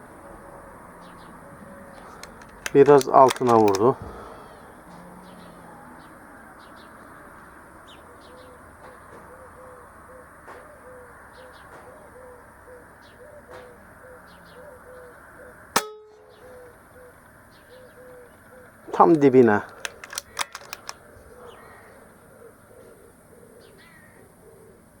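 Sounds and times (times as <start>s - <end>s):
faint bird chirps: 4.2s - 19.7s, 21.0s - 24.8s
brief ringing: 15.8s - 16.3s.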